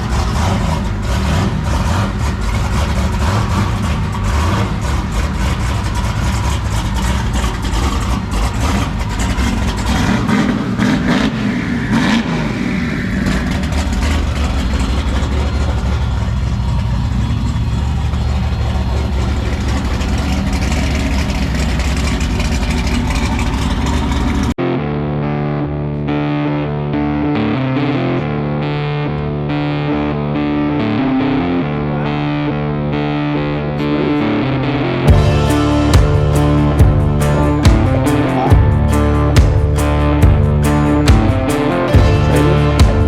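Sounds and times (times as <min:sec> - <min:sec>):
distorted electric guitar music: 0:00.0 - 0:22.7, 0:24.6 - 0:43.0
car engine running: 0:00.0 - 0:24.6, 0:28.4 - 0:43.0.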